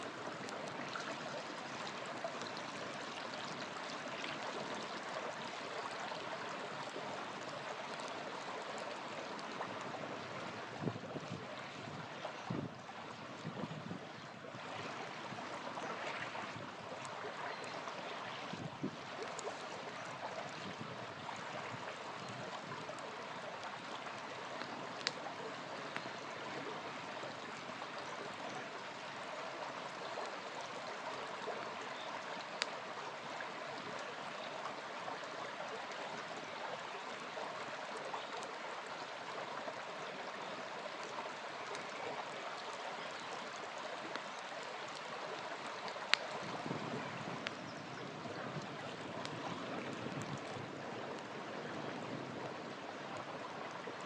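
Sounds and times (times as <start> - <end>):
campfire crackling and popping: 0.0 - 12.0, 14.9 - 31.1, 32.4 - 35.2, 39.3 - 51.4
small river flowing: 0.0 - 54.0.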